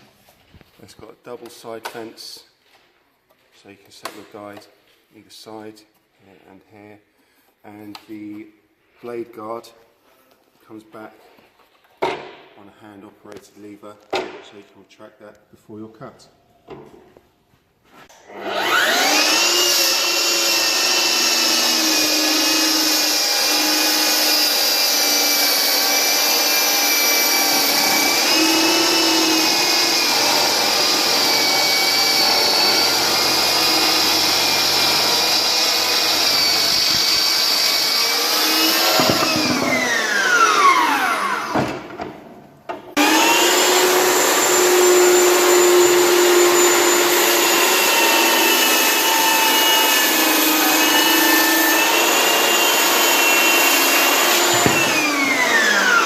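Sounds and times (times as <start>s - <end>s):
circular saw whine: 18.4s - 41.6s.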